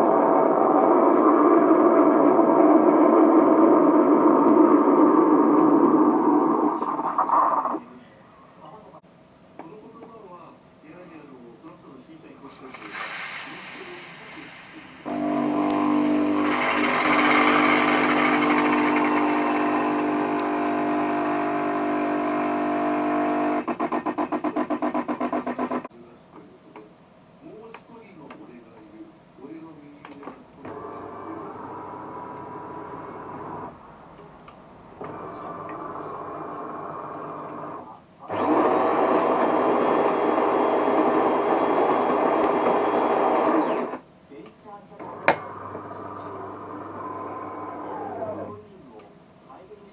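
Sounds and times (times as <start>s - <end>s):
espresso machine hiss: 12.4s - 20.7s
coffee grinder grinding beans: 15.0s - 23.4s
espresso machine buzzing hum: 15.1s - 23.6s.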